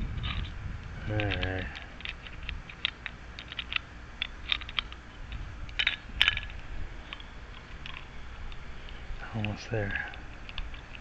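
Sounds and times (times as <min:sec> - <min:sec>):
metal lock parts clicking: 0:01.1 - 0:11.0.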